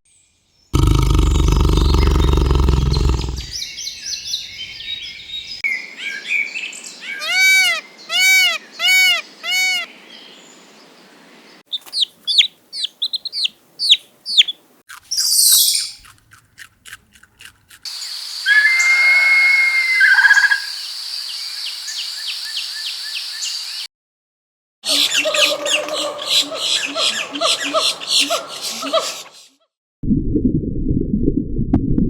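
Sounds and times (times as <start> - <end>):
held whistled note: 18.5 - 20.4.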